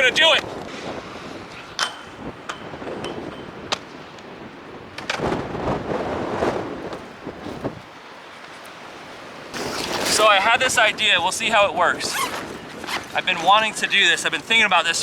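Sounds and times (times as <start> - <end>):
wind buffeting microphone: 0.0 - 15.0
rough grinding on rail: 9.5 - 10.5.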